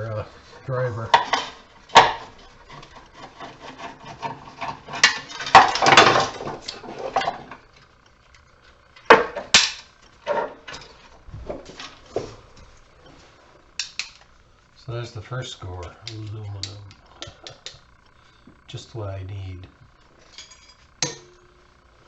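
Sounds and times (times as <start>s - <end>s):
metal parts knocking and clanking: 1.1s - 7.6s
metal rattling scrape: 1.1s - 7.7s.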